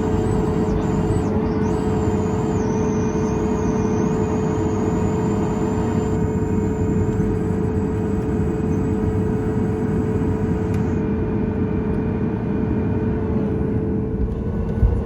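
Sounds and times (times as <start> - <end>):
faint high whine: 0.0 - 11.0
jet engines idling in cabin: 0.0 - 15.0.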